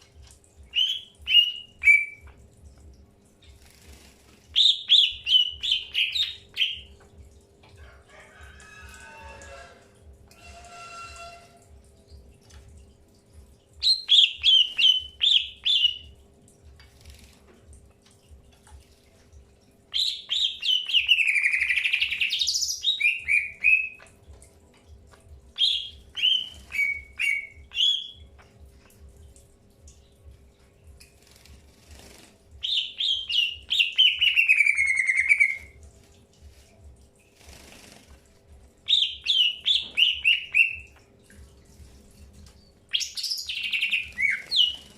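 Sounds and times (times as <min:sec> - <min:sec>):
bird chirping rapidly: 0:42.9 - 0:44.9.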